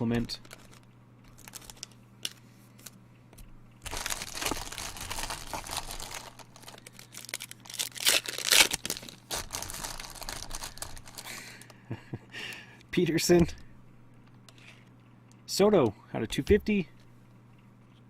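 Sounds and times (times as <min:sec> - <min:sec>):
card pack wrappers crinkling: 0:00.1 - 0:03.0, 0:03.8 - 0:11.8.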